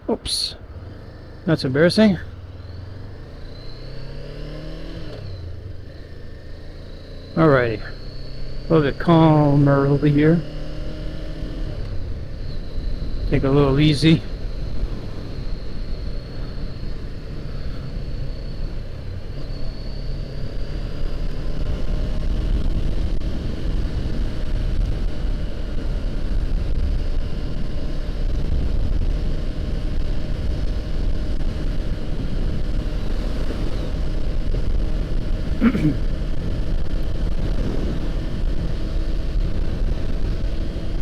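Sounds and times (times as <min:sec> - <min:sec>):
motorcycle engine running: 0:00.0 - 0:41.0
wind rumbling on microphone: 0:11.0 - 0:41.0.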